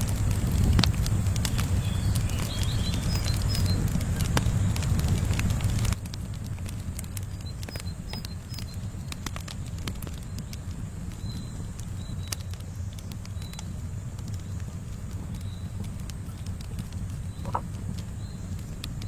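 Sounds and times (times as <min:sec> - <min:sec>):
campfire crackling: 0:00.0 - 0:19.0
low rumble: 0:00.0 - 0:19.0
faint bird chirps: 0:01.5 - 0:04.8, 0:07.2 - 0:19.0.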